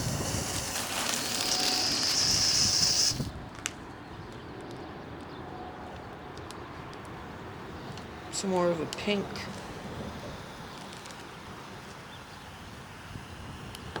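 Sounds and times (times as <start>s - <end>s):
fuse hissing: 0.0s - 3.3s.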